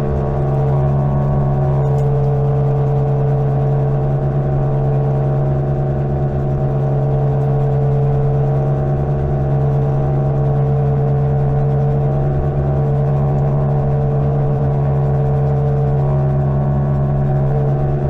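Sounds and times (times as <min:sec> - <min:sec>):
electric motor whine: 0:00.0 - 0:05.4.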